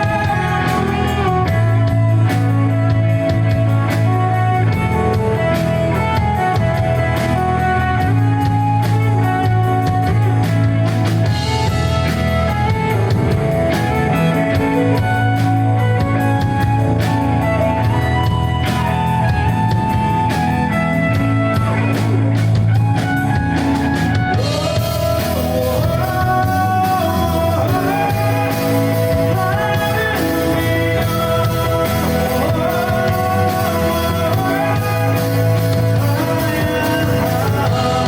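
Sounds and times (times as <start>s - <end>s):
person singing: 0.0s - 10.2s, 24.3s - 38.0s
bass guitar: 0.0s - 38.0s
drums: 0.0s - 38.0s
electric guitar: 0.0s - 38.0s.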